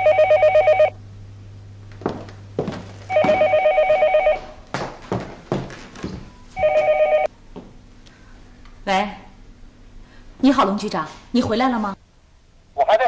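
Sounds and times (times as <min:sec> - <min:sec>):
telephone ringing with warbling trill: 0:00.0 - 0:01.0, 0:03.1 - 0:04.5, 0:06.6 - 0:07.3.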